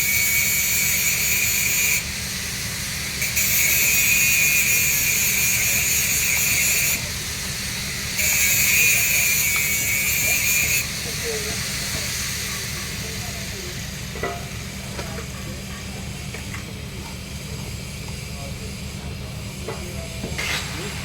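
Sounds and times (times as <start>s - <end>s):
welding arc hissing and crackling: 0.0s - 21.0s.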